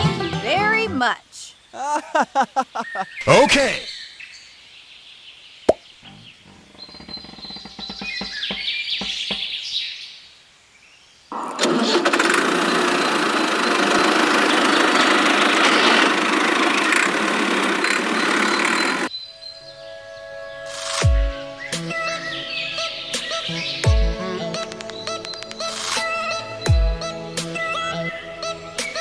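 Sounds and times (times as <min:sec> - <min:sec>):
small motor running: 0:11.9 - 0:19.1.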